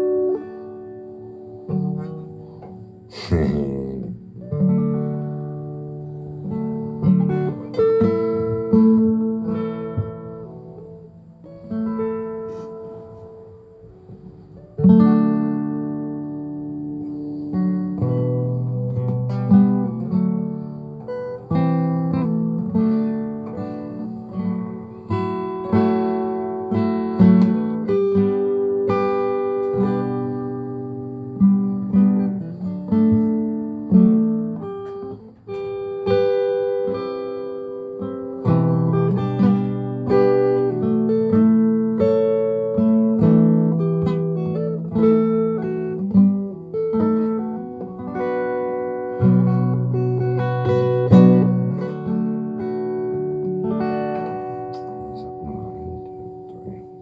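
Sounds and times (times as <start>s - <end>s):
acoustic guitar strummed: 0.0s - 57.0s.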